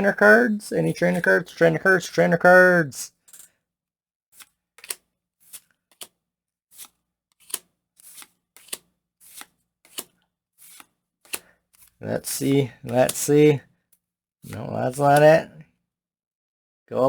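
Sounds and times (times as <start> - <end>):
trading cards swishing: 6.8 - 12.0.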